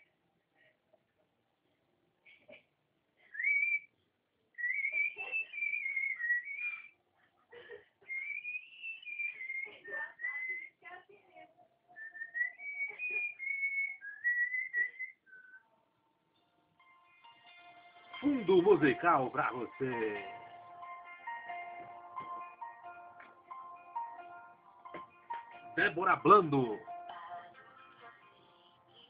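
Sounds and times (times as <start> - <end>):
man whistling a tune: 8.1 - 9.6, 12.0 - 15.6.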